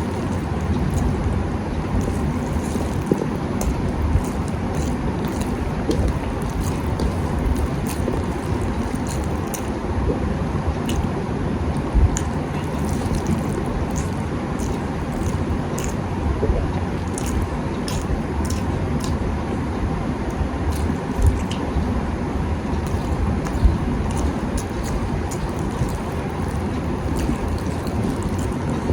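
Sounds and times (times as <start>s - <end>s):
wet chewing and mouth smacks: 0.0s - 19.3s, 20.3s - 22.0s, 22.7s - 28.9s
low rumble: 0.0s - 28.9s.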